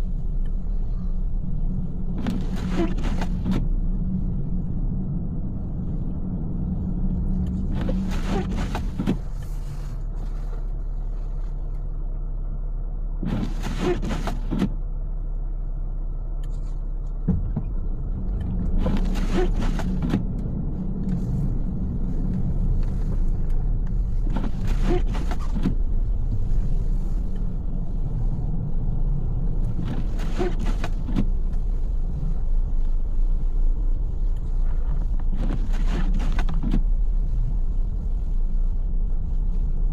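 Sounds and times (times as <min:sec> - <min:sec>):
road and engine rumble in car: 0:00.0 - 0:39.9
windshield wipers swishing: 0:02.0 - 0:04.0, 0:07.4 - 0:11.8, 0:13.2 - 0:14.8, 0:16.5 - 0:39.9.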